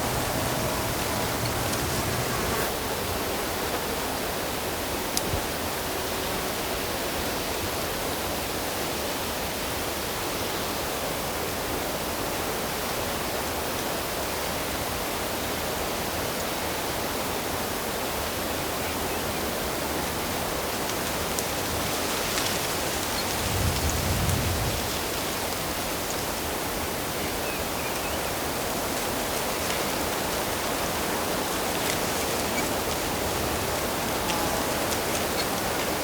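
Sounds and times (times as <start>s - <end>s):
flowing water rushing: 0.0s - 2.7s, 24.8s - 36.0s.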